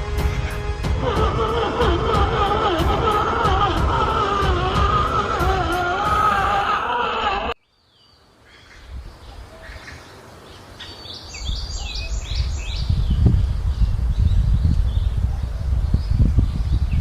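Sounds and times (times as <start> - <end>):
background music: 0.0 - 7.6
low rumbling noise: 0.0 - 7.6
bird chirping: 7.6 - 17.0.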